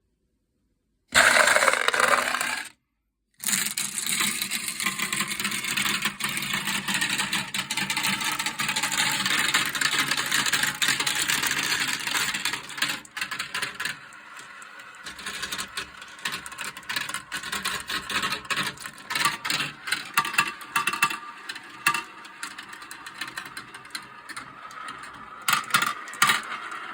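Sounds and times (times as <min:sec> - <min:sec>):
marbles rolling and clattering: 0:01.2 - 0:02.7, 0:03.4 - 0:26.9.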